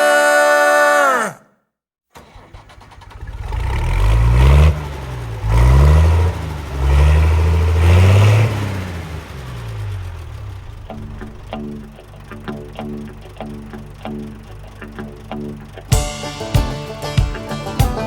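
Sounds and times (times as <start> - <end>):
harvester engine revving: 2.2 - 16.0.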